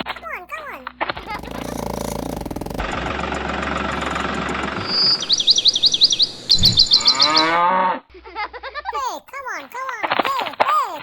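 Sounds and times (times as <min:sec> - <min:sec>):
engine-like running noise: 0:01.4 - 0:06.5.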